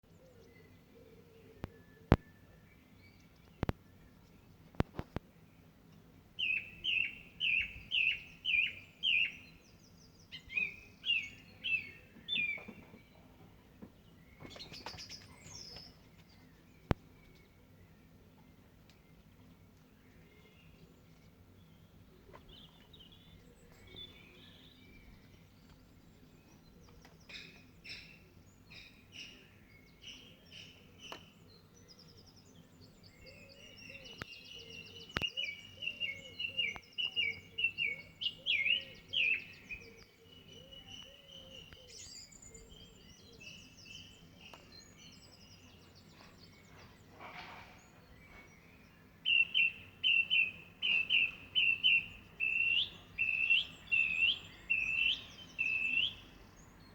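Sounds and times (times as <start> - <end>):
songbird singing: 0.0 - 56.9.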